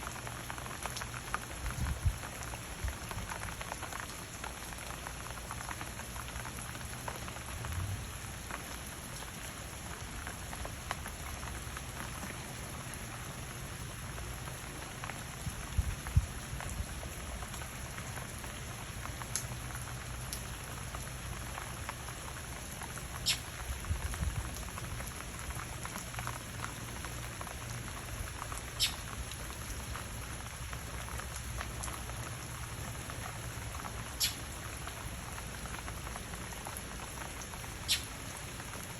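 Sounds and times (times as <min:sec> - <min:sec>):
steady rain falling: 0:00.0 - 0:38.9
sharp drips: 0:08.8 - 0:38.9.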